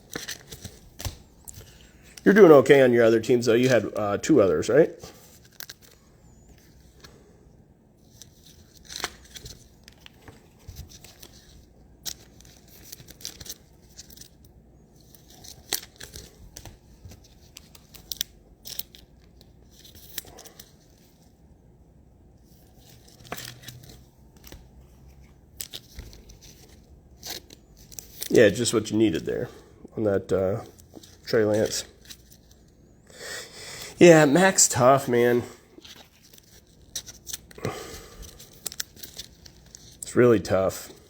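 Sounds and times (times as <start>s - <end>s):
wrappers tearing and crinkling: 35.8s - 40.1s.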